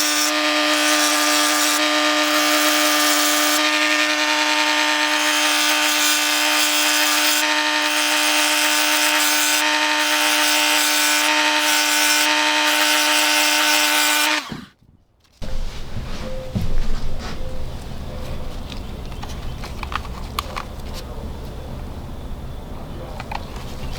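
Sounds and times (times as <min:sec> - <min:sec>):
power tool grinding metal: 0:00.0 - 0:14.7.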